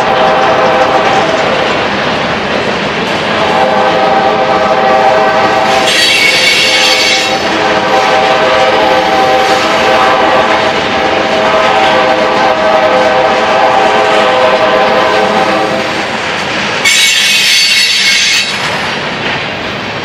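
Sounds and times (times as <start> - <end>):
freight train wheels on rails: 0.0 - 20.0
high-pitched wheel squeal: 5.7 - 7.4, 16.9 - 18.6.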